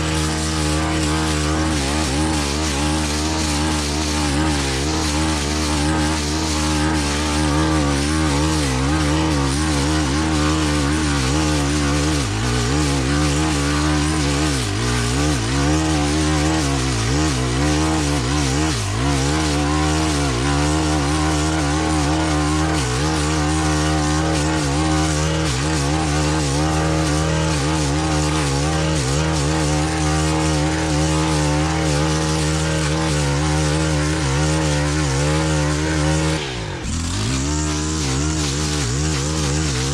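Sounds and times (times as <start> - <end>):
brush cutter engine at high revs: 0.0 - 39.9.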